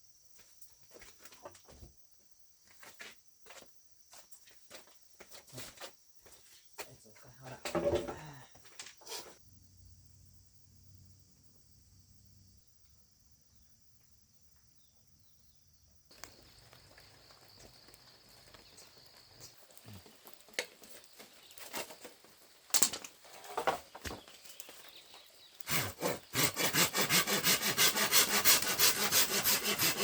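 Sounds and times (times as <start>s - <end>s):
wood knocking and scraping: 7.6s - 8.2s, 22.8s - 24.4s.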